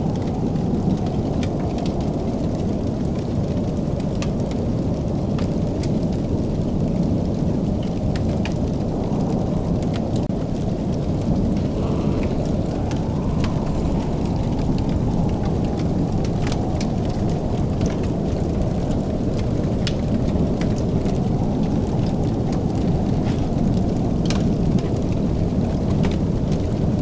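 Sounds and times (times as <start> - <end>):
wood fire crackling and popping: 0.0 - 27.0
low rumble: 6.9 - 26.0.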